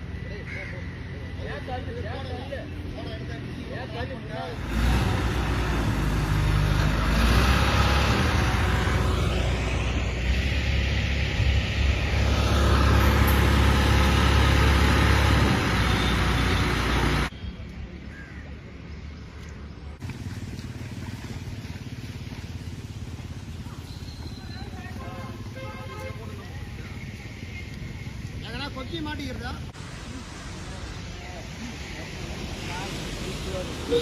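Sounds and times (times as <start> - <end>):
tractor engine under load: 4.6 - 17.3.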